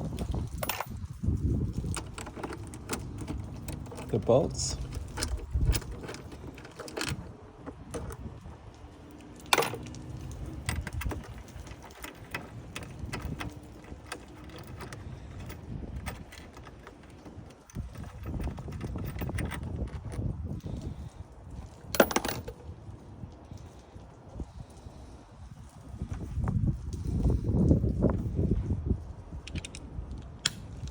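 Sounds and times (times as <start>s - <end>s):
metal tools clinking and knocking: 0.0s - 22.7s.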